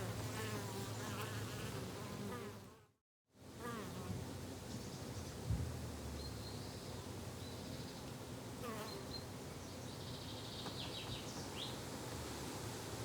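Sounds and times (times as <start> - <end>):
small birds chirping: 8.8 - 11.8.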